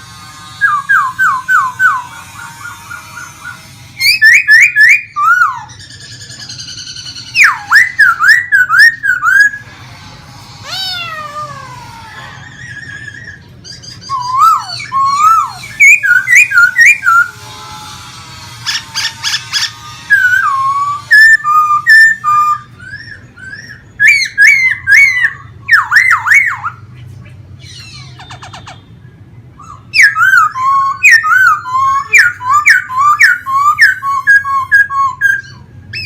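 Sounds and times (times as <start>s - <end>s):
bird singing whistled notes: 0.6s - 9.6s, 12.7s - 17.4s, 19.3s - 26.9s, 29.6s - 36.0s.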